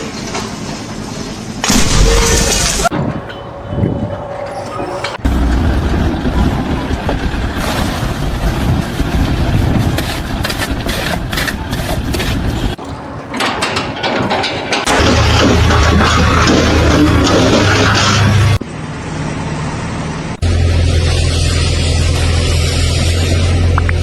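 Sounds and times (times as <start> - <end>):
heavy engine rattling and knocking: 5.1 - 18.6.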